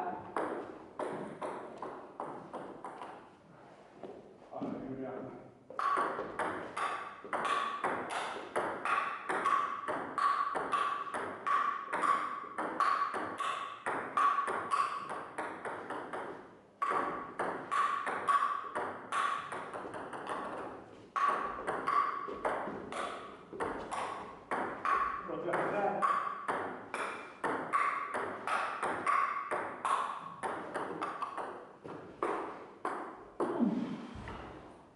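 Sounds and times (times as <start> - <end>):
table tennis ball pings: 5.7 - 33.6.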